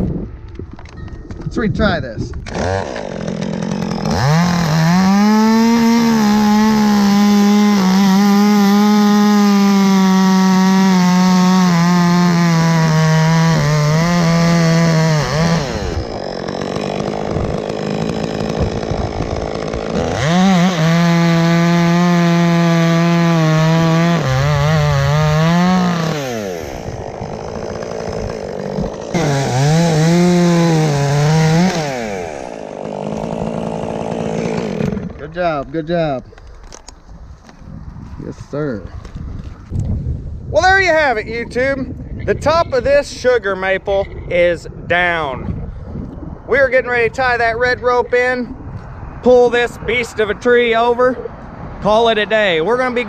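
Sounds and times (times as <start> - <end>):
chainsaw cutting through trunk: 2.4 - 35.5.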